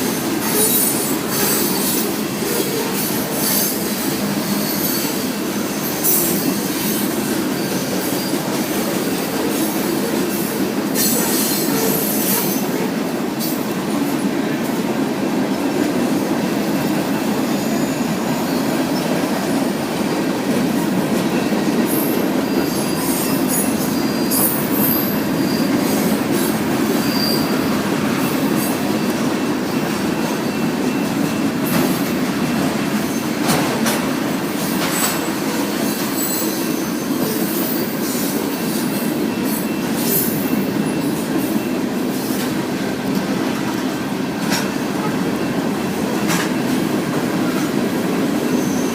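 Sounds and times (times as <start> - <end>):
freight train cars rolling: 0.0 - 48.9
high thin wheel squeal: 0.4 - 8.5, 21.4 - 26.2, 27.0 - 29.3, 34.9 - 42.4, 48.5 - 48.9.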